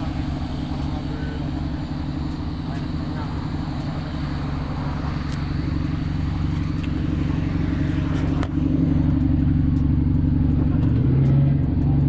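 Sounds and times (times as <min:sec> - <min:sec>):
car engine running: 0:00.0 - 0:12.0
road noise: 0:00.0 - 0:12.0.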